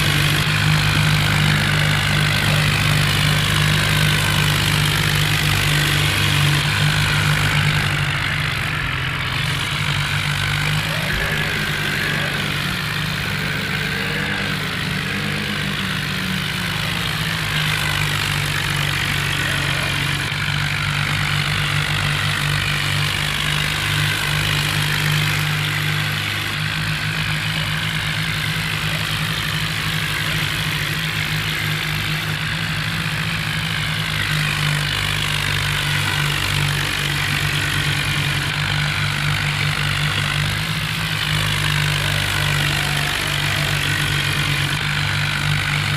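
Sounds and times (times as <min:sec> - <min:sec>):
diesel tractor engine drone: 0:00.0 - 0:45.9.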